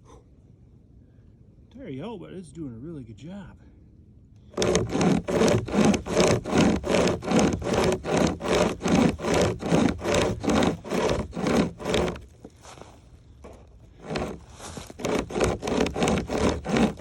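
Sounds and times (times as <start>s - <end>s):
hand chain saw rasping through wood: 4.5s - 12.3s, 13.9s - 17.0s.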